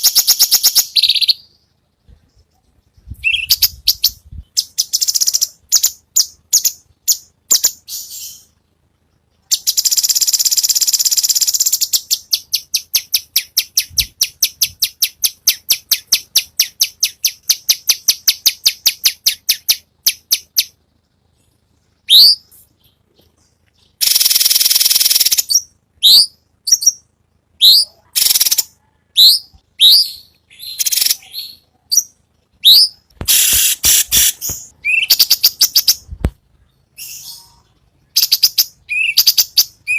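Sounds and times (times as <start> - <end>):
bird song with raspy bursts: 0.0 - 39.9.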